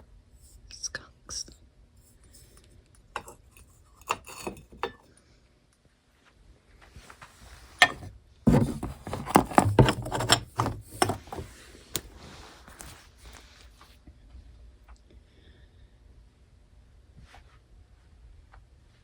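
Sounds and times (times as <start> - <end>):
small objects clattering: 7.8 - 11.6.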